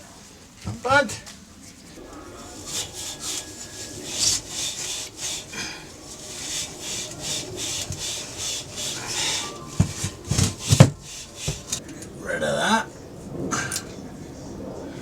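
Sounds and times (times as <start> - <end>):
cloth scrubbing a part: 2.0 - 11.8
knocks: 2.1 - 11.8.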